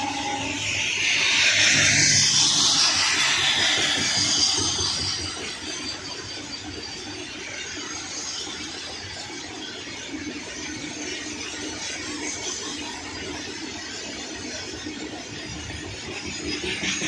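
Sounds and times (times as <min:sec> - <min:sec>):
high wheel squeal: 0:00.0 - 0:07.3
freight train rumble and clatter: 0:00.0 - 0:17.0.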